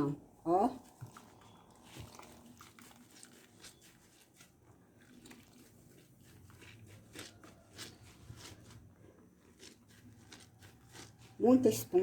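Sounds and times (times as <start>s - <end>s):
soap rubbing on wet sponge: 0.8s - 12.0s.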